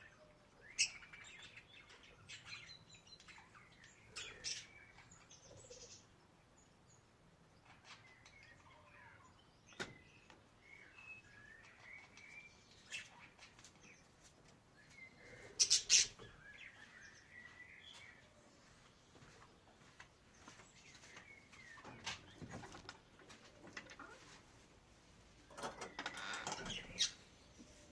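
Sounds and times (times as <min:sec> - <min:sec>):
budgerigars chirping and warbling: 0:00.6 - 0:06.1, 0:07.6 - 0:10.1, 0:11.4 - 0:13.6, 0:15.0 - 0:18.1, 0:25.5 - 0:27.9.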